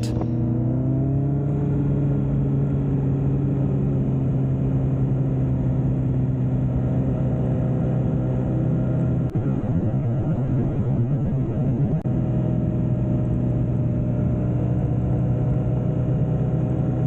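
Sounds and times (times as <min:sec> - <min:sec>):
low rumble: 0:00.0 - 0:00.6, 0:09.3 - 0:12.1
motorcycle engine running: 0:00.0 - 0:00.7, 0:08.5 - 0:16.9.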